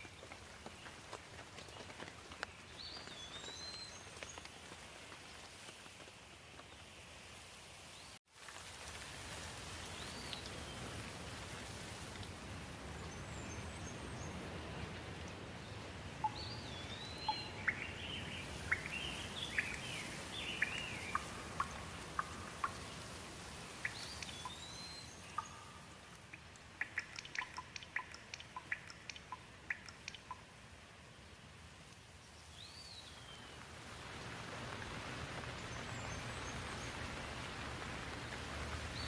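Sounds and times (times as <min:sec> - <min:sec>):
steady rain: 0:00.0 - 0:39.0
water drips: 0:08.4 - 0:31.1
bird chirping: 0:15.6 - 0:23.1, 0:23.8 - 0:30.4.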